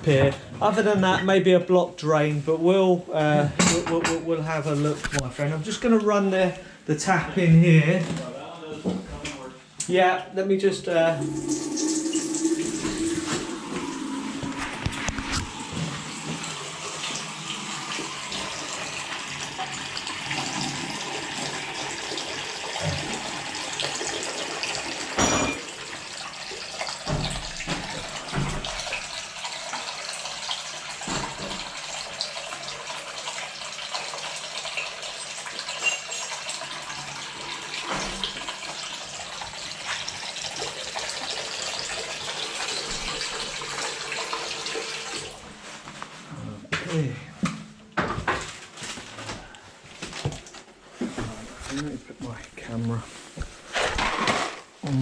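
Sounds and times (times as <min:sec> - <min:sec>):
tap running into sink: 0:11.2 - 0:17.2, 0:26.8 - 0:30.1, 0:31.0 - 0:32.2, 0:37.7 - 0:41.4, 0:42.3 - 0:45.3.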